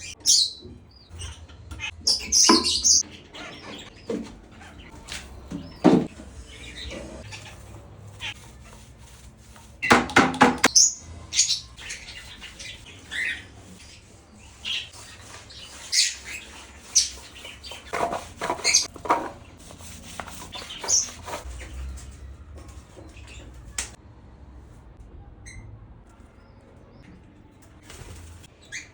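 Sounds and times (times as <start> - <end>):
parrot chirping and squawking: 0.0 - 5.8, 6.4 - 8.9, 10.6 - 18.9, 20.4 - 21.8.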